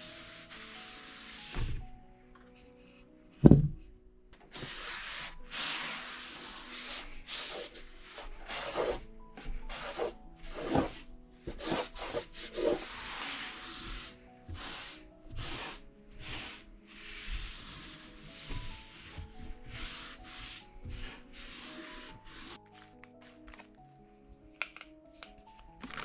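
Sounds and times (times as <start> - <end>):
rubbing and wiping on surfaces: 0.0 - 1.8, 4.5 - 23.4
background music with held notes: 0.0 - 26.0
knock on cupboard: 3.4 - 3.8.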